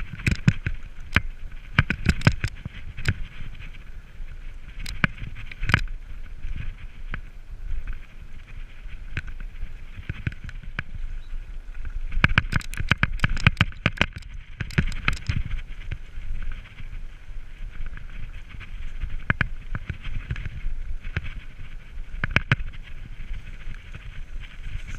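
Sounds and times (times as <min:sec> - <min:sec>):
bike clicks and knocks: 0:00.0 - 0:03.7, 0:04.8 - 0:06.0, 0:09.1 - 0:11.0, 0:11.7 - 0:16.1, 0:17.8 - 0:21.4, 0:22.1 - 0:22.8
mountain bike rumbling on trail: 0:00.0 - 0:24.9.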